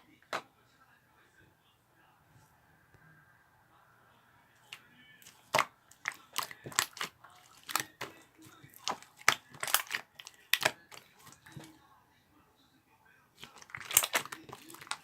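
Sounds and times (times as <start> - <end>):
slime popping and clicking: 8.7 - 11.6, 13.5 - 15.0.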